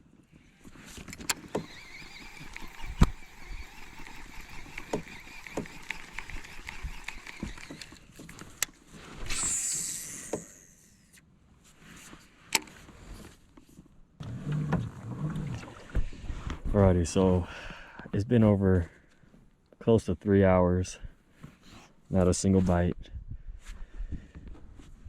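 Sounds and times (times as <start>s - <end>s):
gear knocking against kayak: 1.0s - 8.7s
brief rushing swell: 9.3s - 10.3s.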